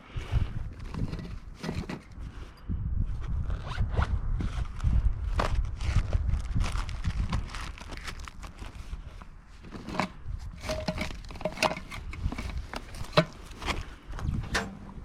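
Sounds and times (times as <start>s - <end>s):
objects knocking and rattling: 0.8s - 2.2s, 9.7s - 15.0s.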